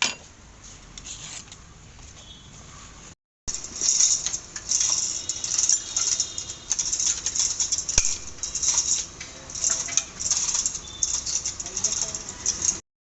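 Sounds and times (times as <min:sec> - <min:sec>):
tools and metal parts rattling: 0:03.5 - 0:12.8.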